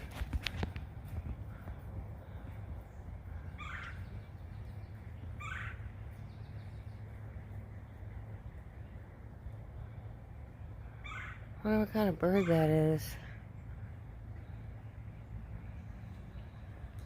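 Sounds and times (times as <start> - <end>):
steady low rumble: 0.0 - 17.0
bird calling: 3.3 - 7.0, 10.8 - 16.8.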